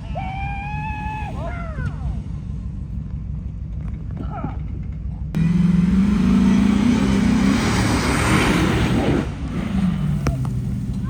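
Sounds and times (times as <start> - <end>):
engine revving hard: 5.4 - 11.0.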